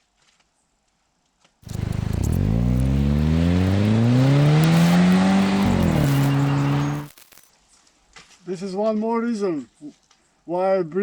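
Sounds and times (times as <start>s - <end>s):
motor running up: 1.7s - 7.2s.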